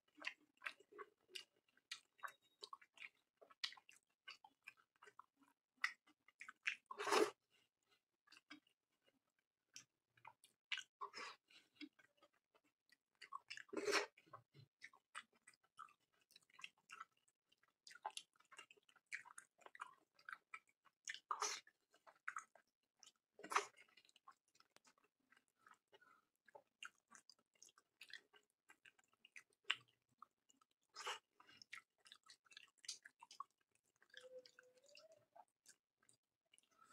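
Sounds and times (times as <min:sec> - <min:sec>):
person chewing with wet smacks: 0:00.1 - 0:36.9.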